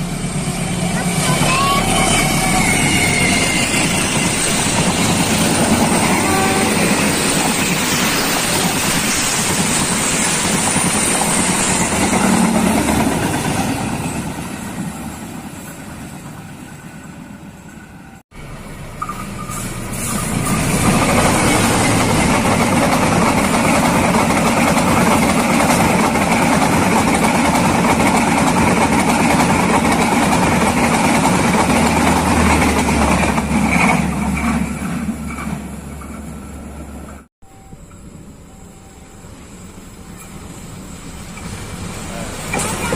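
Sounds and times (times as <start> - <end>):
train wheels on rails: 0.0 - 42.9.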